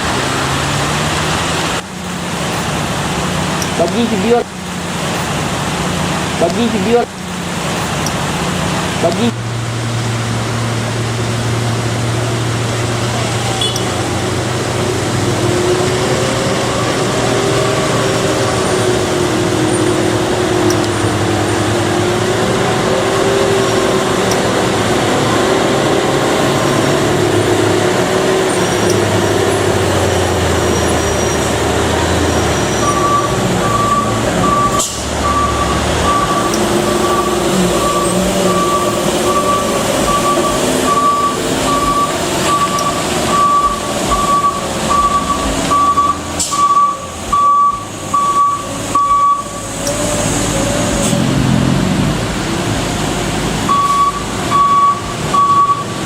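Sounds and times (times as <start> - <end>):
heavy truck engine running: 0.0 - 56.0
reversing alarm beeping: 13.6 - 14.0, 30.4 - 50.0, 53.7 - 56.0.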